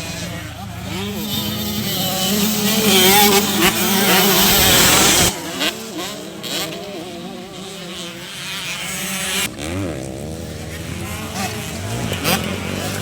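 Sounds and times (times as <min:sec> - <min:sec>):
racing motorcycle engines revving: 0:00.0 - 0:13.0.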